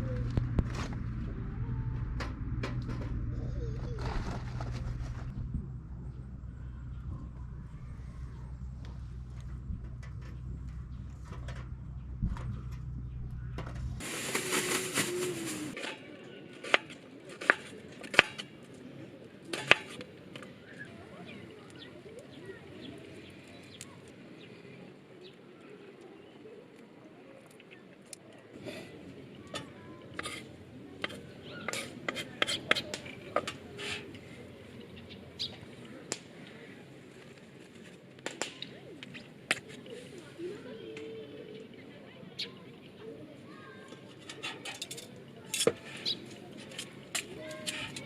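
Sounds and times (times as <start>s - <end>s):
faint background voices: 0.0s - 48.0s
rushing hiss: 14.0s - 15.8s.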